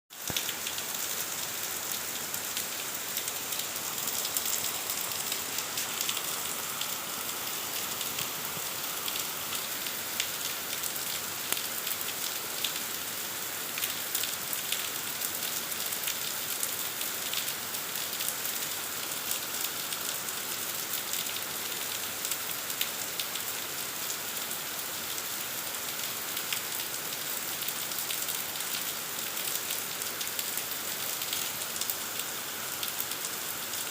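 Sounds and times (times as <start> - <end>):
heavy rain falling: 0.2 - 17.4.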